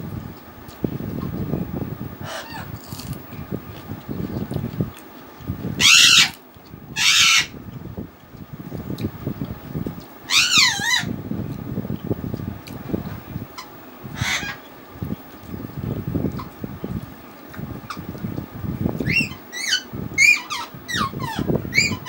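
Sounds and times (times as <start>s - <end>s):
bird calling loudly: 5.8s - 6.4s, 7.0s - 7.6s, 10.3s - 11.2s, 13.6s - 14.6s.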